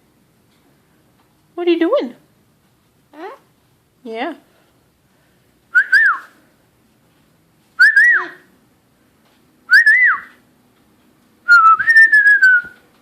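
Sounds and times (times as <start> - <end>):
person whistling: 5.8 - 6.4, 7.8 - 8.4, 9.7 - 10.4, 11.5 - 12.8.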